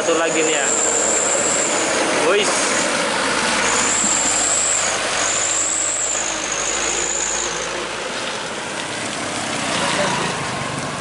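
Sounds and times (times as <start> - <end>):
thin high whine: 0.0 - 2.8, 3.6 - 7.8
truck engine running: 0.0 - 8.7.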